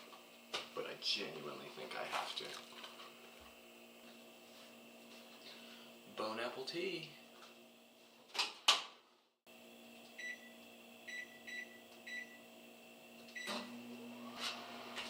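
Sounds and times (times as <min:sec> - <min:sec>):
microwave oven humming: 0:02.8 - 0:08.0, 0:09.5 - 0:15.0.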